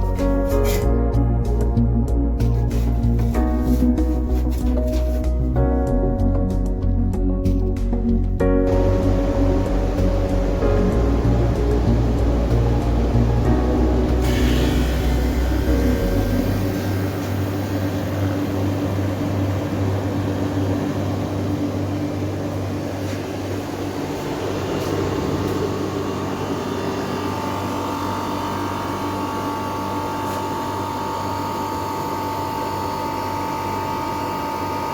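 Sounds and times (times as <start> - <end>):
air conditioner fan noise: 0.0 - 34.9
low mains hum: 8.4 - 34.9
steady high whine: 8.6 - 34.9.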